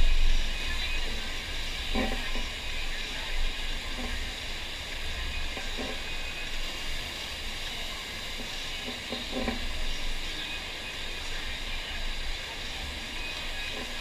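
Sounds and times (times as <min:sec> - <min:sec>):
low rumble: 0:00.0 - 0:06.5
faint distant voices: 0:00.0 - 0:14.0
rushing water hiss: 0:00.0 - 0:14.0.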